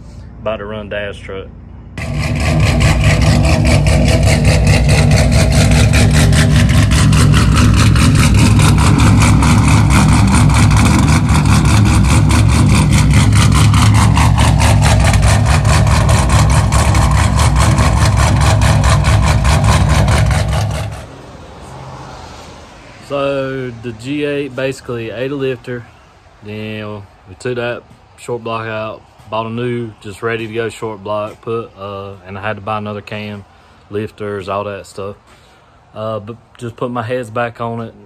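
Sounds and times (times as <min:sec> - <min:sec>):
car engine idling: 0:00.0 - 0:21.3.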